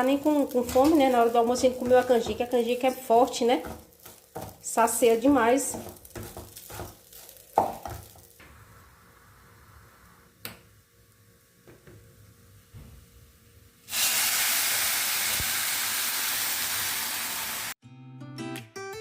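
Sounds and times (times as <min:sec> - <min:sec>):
rice frying in a pan: 0:00.0 - 0:12.3, 0:13.3 - 0:17.8
loud hiss of steam and sizzling: 0:13.9 - 0:17.8
acoustic guitar music: 0:17.8 - 0:19.0.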